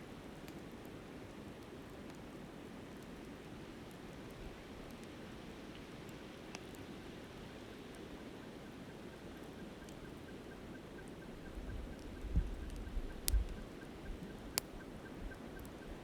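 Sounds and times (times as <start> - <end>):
campfire crackling and popping: 0.1 - 8.1, 9.4 - 16.0.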